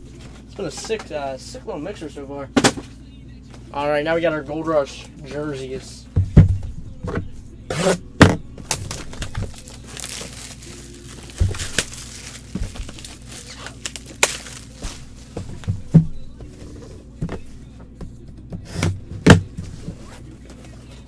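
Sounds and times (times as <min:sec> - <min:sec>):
handling knocks and clicks: 0:08.2 - 0:20.8
plastic packaging crinkling and tearing: 0:08.6 - 0:15.6.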